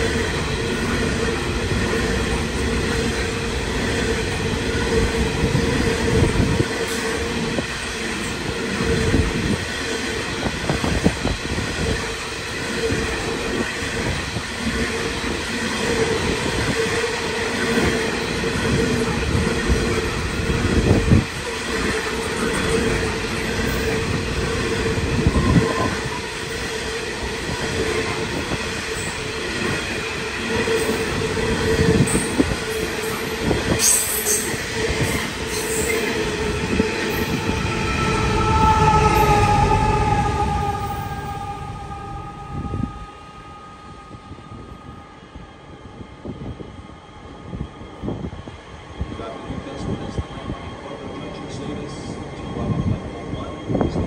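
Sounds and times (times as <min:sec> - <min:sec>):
diesel locomotive engine rumble: 0:00.0 - 0:54.0
gliding tones: 0:34.6 - 0:45.7.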